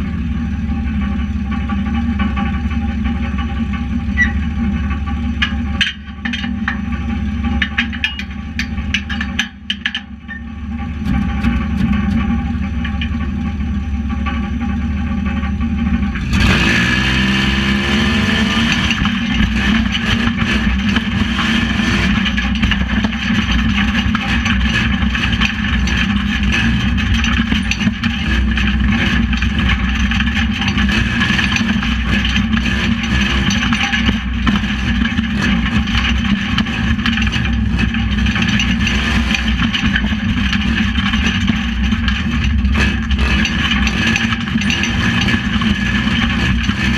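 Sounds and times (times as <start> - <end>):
knocks and rattles: 1.0 - 46.9
truck engine revving: 16.1 - 46.9.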